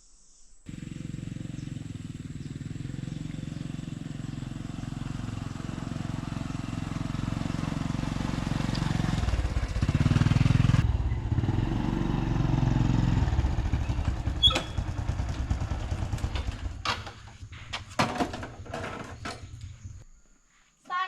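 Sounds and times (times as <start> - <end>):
small motorcycle engine running: 0.7 - 19.8.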